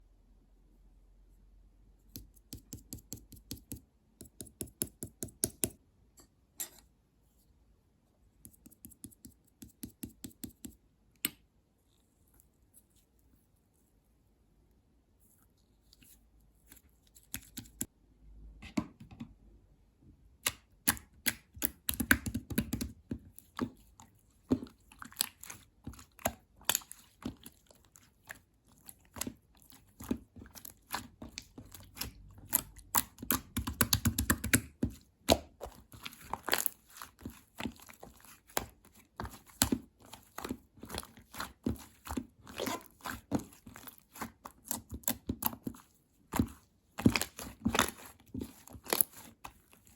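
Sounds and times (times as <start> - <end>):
slime squelching: 20.4 - 49.9.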